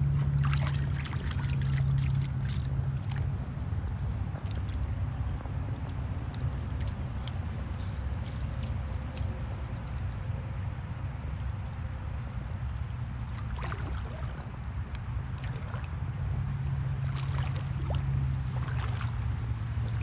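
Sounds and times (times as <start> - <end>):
splashing from wading: 0.0 - 5.0, 13.1 - 20.0
creek water: 0.0 - 20.0
steady low rumble: 0.0 - 20.0.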